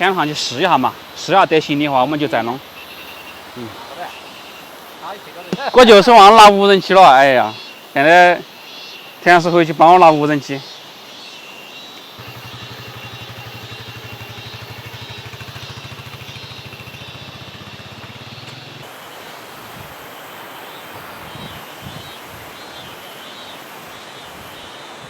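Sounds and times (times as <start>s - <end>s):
insects chirring: 0.0s - 25.0s
small engine idling: 12.2s - 18.9s.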